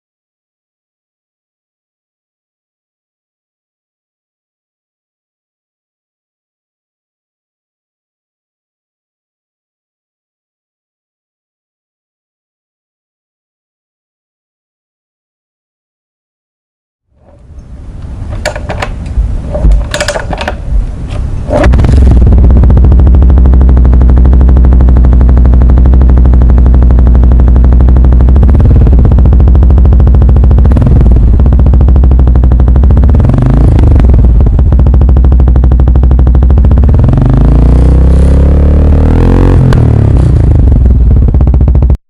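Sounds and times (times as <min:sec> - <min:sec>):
motorcycle engine running: 0:17.2 - 0:42.0
clattering engine knocks: 0:18.3 - 0:20.7.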